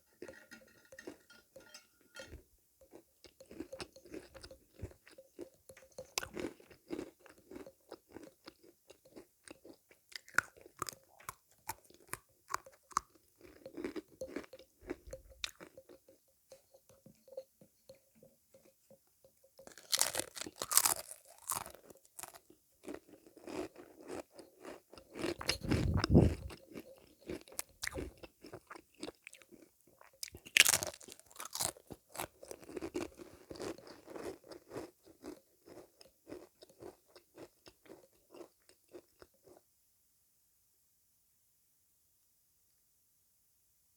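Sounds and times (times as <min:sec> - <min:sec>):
sweets being chewed and crunched: 0:03.2 - 0:15.9, 0:19.6 - 0:39.6
dull low rumble: 0:25.5 - 0:26.5.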